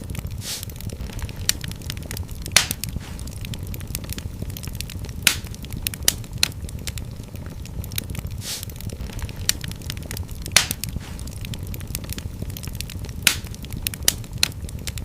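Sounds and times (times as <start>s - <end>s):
sharp pops of fire: 0.0s - 15.0s
wood fire crackling: 0.0s - 15.0s
brief hiss: 0.4s - 0.7s, 8.4s - 8.7s.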